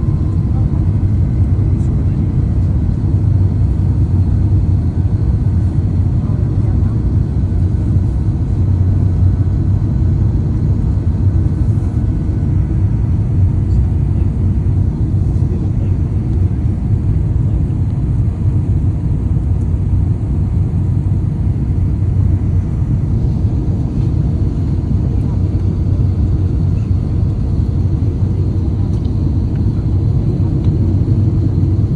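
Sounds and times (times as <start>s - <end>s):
airliner low rumble: 0.0s - 31.9s.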